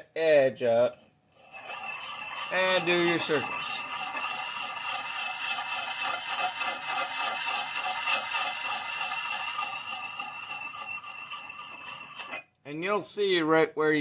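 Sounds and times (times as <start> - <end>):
sharpening stone scraping axe: 1.3 - 12.5.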